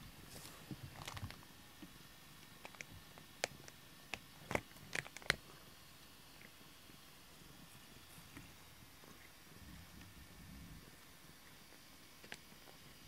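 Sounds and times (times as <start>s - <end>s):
cat gnawing plastic brush: 0.3s - 1.4s, 2.4s - 5.6s.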